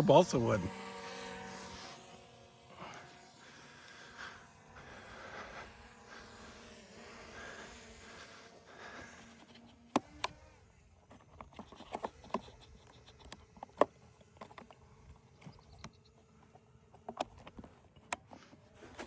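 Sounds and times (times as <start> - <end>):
sharp clicks and knocks: 11.1 - 14.8.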